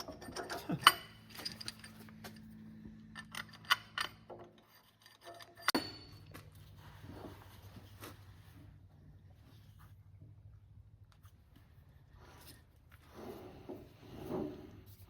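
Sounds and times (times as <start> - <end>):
metal parts clinking and scraping: 0.0 - 6.7
metallic clank with ring: 5.2 - 6.4.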